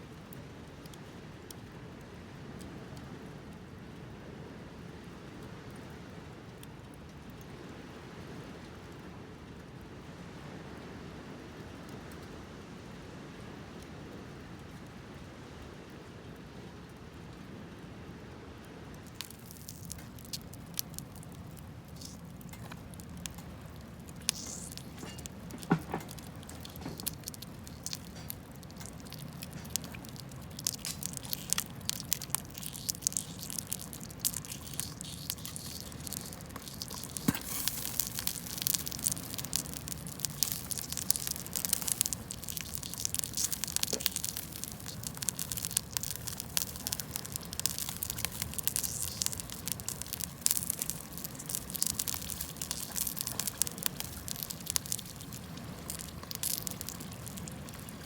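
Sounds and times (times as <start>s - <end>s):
low steady fire hiss: 0.0s - 58.0s
campfire snaps and pops: 19.0s - 58.0s.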